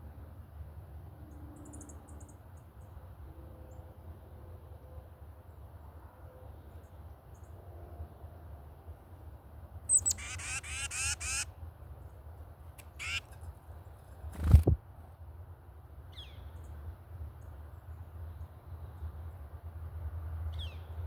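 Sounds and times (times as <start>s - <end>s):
bird chirp: 9.9s - 11.4s, 12.8s - 13.3s
rasping bird calls: 9.9s - 11.5s, 12.8s - 13.4s.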